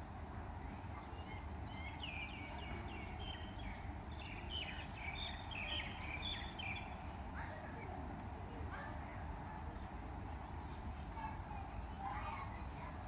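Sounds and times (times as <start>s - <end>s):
bird chirping: 1.0s - 7.2s.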